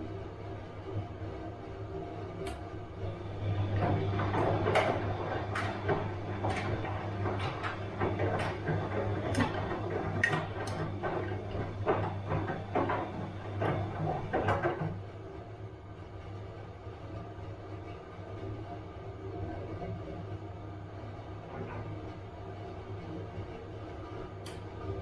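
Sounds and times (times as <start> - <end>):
washing machine motor hum: 0.0 - 25.0
washing machine clicks and knocks: 3.4 - 15.0.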